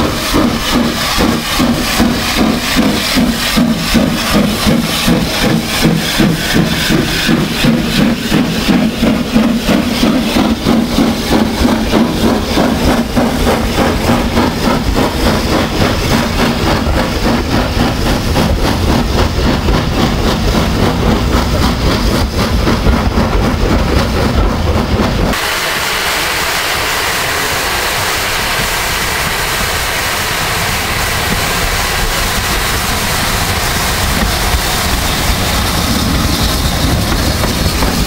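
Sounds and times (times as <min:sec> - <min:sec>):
steam train rhythmic beat: 0:00.0 - 0:38.0.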